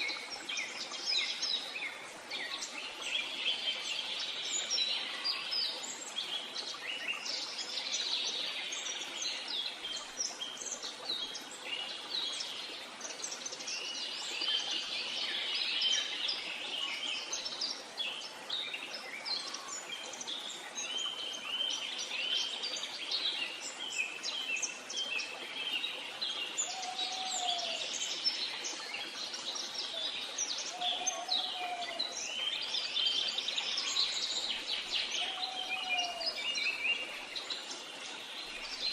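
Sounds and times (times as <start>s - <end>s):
birds chirping and singing: 30.7s - 32.3s, 33.6s - 36.9s.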